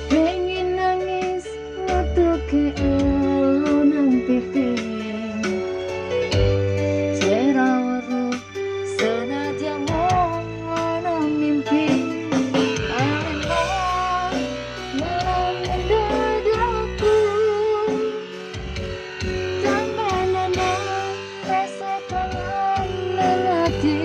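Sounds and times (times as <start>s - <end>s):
person singing with vibrato: 7.1s - 18.6s, 19.5s - 24.0s
band with plucked strings and drums: 8.4s - 24.0s.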